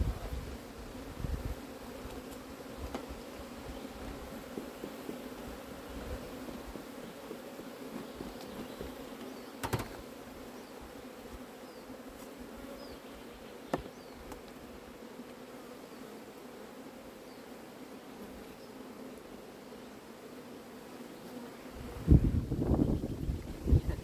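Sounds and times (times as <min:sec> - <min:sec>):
honeybees buzzing: 0:00.0 - 0:24.0
short sharp knocks: 0:09.6 - 0:10.0.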